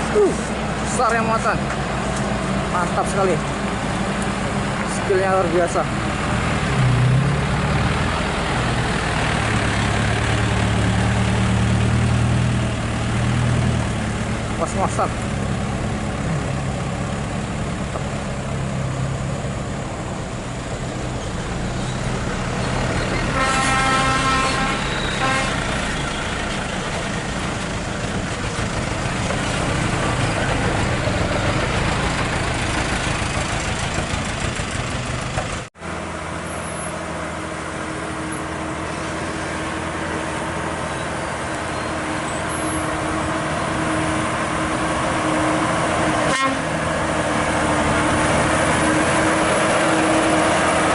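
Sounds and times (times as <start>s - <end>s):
heavy truck engine running: 0.0s - 50.9s
vehicle horn: 23.3s - 25.7s, 46.2s - 46.7s.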